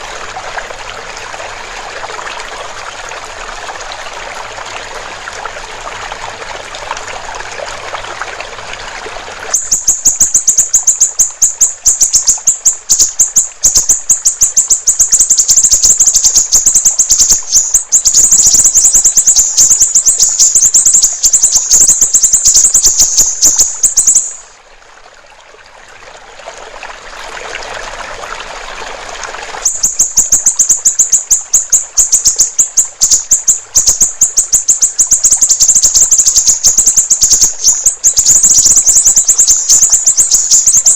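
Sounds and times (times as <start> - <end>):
trickling water: 0.0 - 40.9
bird singing high-pitched trill: 9.6 - 24.5, 29.6 - 40.9.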